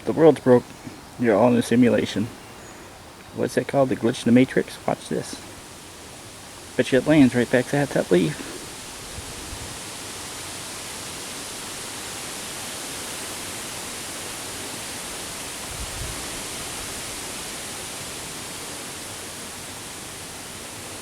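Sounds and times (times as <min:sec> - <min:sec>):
creek water rushing: 0:00.0 - 0:21.0
wind rumble on microphone: 0:09.0 - 0:09.9, 0:15.6 - 0:17.1.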